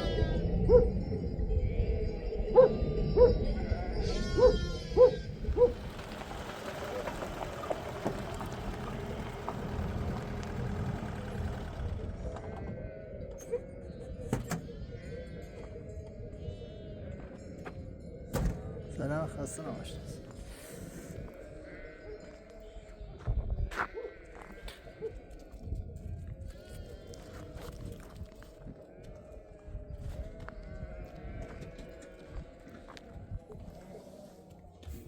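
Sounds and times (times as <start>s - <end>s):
sheep bleating: 0.0s - 0.6s, 2.8s - 5.5s, 12.4s - 13.8s, 21.4s - 22.8s, 23.7s - 25.5s, 26.4s - 27.9s, 30.3s - 33.1s.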